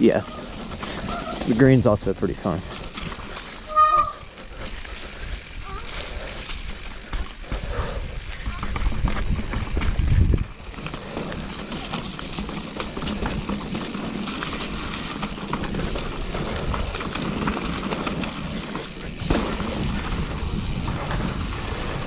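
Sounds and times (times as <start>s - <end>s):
bike rattling over bumps: 0.0s - 22.0s
bike tyres on dirt and stones: 0.0s - 22.0s
wind on microphone: 3.6s - 10.8s, 19.2s - 22.0s.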